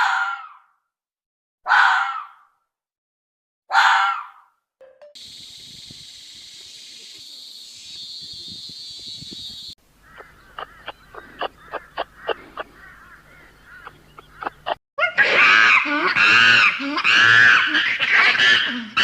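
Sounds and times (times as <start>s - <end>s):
loud pitched arching calls: 9.6s - 19.0s.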